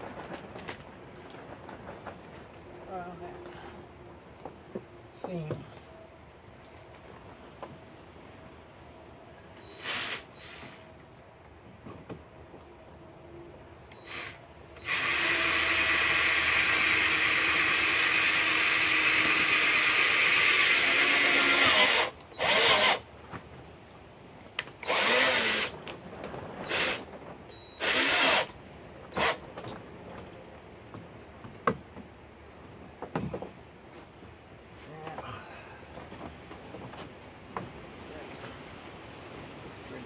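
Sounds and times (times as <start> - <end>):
cordless drill driving screws: 9.8 - 10.8, 13.9 - 23.0, 24.8 - 25.7, 26.7 - 27.0, 27.8 - 28.5, 29.1 - 29.4.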